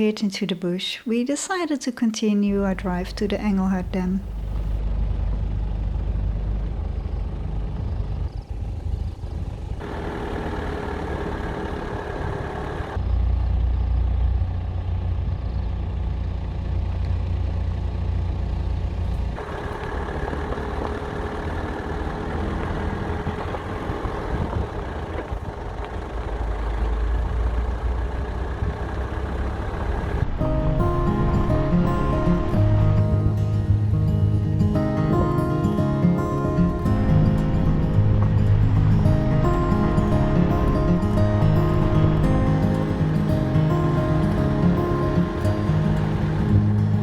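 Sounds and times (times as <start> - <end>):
vehicle engine and road rumble: 2.3 - 47.0.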